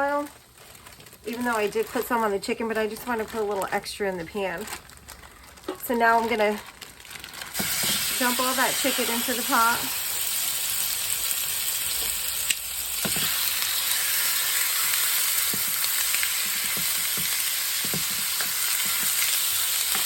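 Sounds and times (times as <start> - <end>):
chicken sizzling in oil: 7.5 - 20.0.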